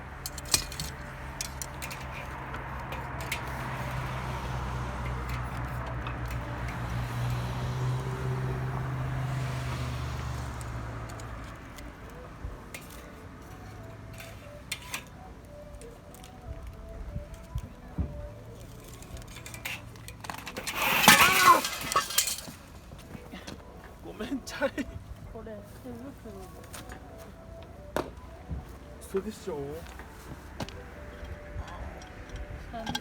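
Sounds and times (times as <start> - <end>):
vehicle engine passing by: 0.0 - 12.5
sharp clicks and ticks: 10.5 - 12.2.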